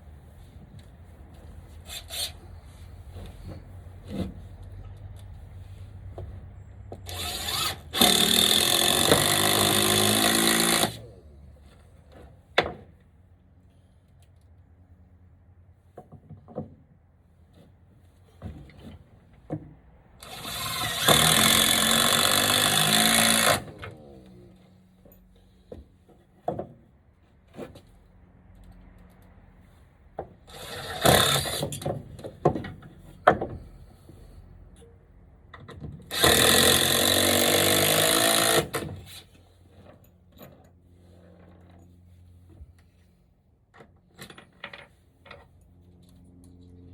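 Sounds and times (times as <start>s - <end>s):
power drill driving screws: 7.0s - 11.0s, 20.2s - 23.8s, 30.5s - 31.8s, 36.1s - 38.9s.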